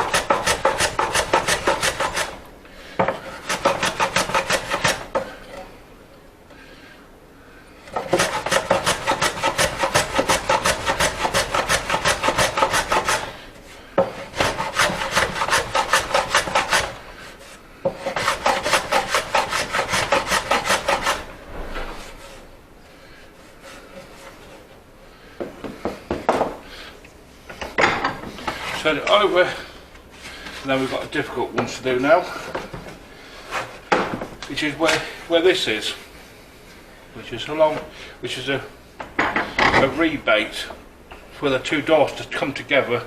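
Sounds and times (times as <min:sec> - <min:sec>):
hand tool rubbing across wood: 0:00.0 - 0:02.4, 0:03.0 - 0:05.7, 0:07.9 - 0:22.5, 0:23.1 - 0:24.8, 0:27.6 - 0:33.9.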